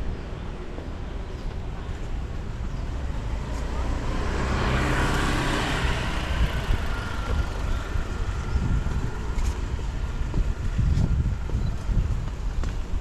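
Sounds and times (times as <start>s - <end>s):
traffic noise: 0.0s - 13.0s
vehicle passing close by: 3.1s - 9.9s.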